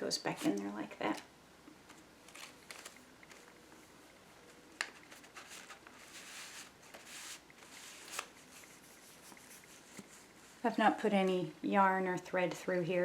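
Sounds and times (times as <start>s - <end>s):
paper rustling: 1.9s - 3.6s, 4.5s - 10.3s.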